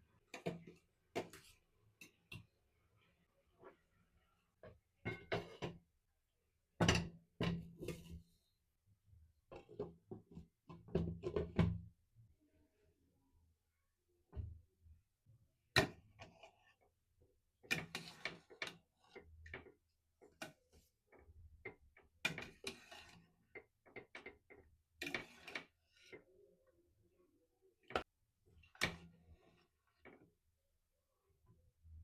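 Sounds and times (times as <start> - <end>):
kitchen utensils clinking and knocking: 5.1 - 5.8.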